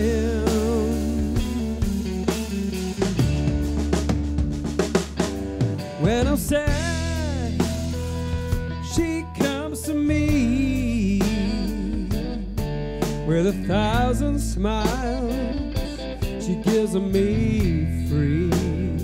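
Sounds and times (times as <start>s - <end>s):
bending lead guitar line: 0.0s - 19.0s
rock band playing live: 0.0s - 19.0s.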